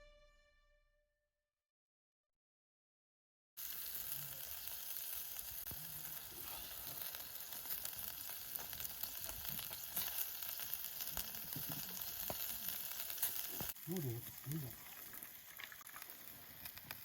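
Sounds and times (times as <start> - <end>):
food sizzling in a hot pan: 3.6 - 17.0.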